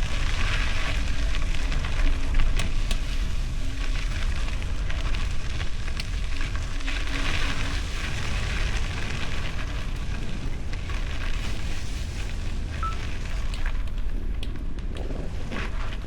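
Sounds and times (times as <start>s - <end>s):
tyres rolling over gravel: 0.0s - 14.2s.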